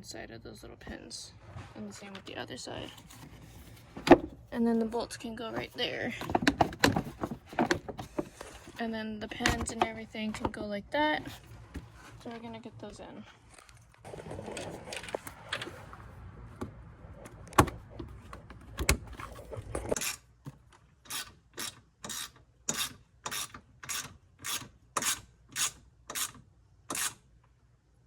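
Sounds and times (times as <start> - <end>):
handling noises: 0.9 - 12.6, 13.2 - 20.9
hand ratchet clicking: 21.1 - 27.2.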